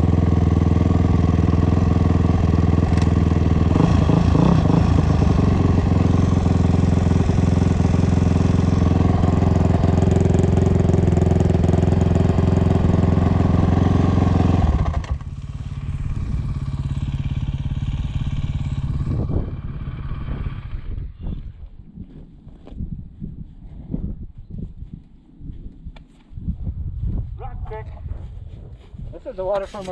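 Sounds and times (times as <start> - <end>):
dirt bike engine running: 0.0 - 22.9.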